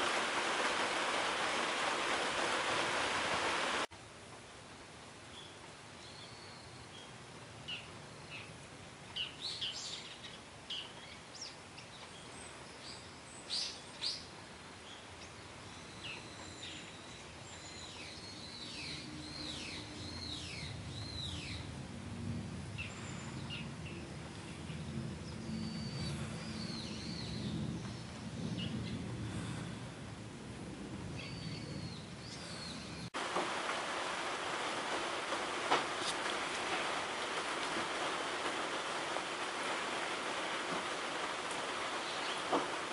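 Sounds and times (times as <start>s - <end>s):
light rain hiss: 0.0s - 42.9s
small birds chirping: 22.8s - 29.0s, 31.2s - 33.2s, 40.4s - 42.9s.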